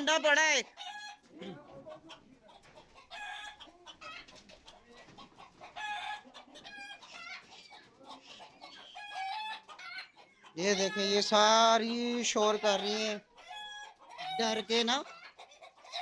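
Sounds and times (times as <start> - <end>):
chickens clucking in alarm: 0.0 - 16.0.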